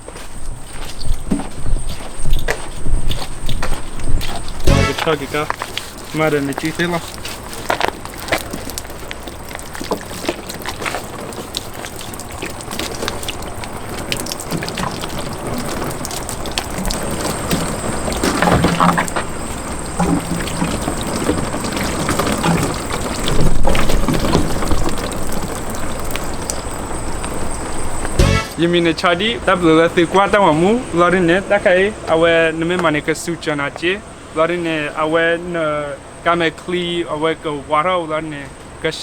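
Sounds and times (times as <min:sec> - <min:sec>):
water pouring and splashing: 0:02.2 - 0:28.6.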